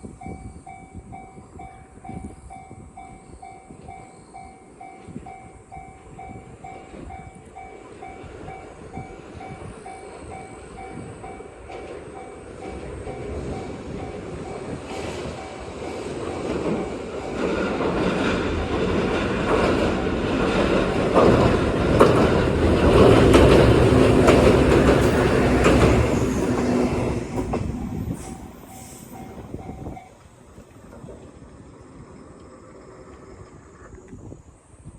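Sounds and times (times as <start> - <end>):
crossing warning bell ringing: 0.0 - 17.6, 20.5 - 30.4
wheels clicking over rail joints: 3.7 - 34.2
electric train running: 4.7 - 31.2.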